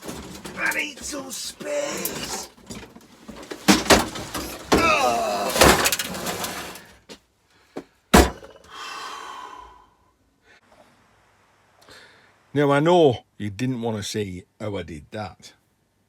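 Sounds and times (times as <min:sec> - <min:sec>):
heavy knocks on workbench: 0:08.2 - 0:08.5.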